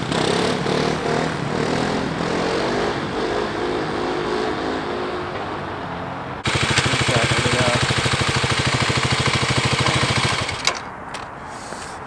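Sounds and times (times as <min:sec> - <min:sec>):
motorcycle engine running: 0:06.4 - 0:11.3.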